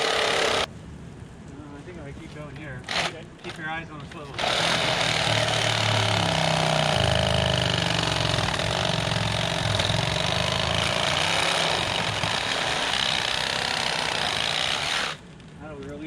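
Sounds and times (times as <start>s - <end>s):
reciprocating saw cutting log: 0.0s - 0.7s, 2.8s - 3.6s, 4.2s - 15.2s.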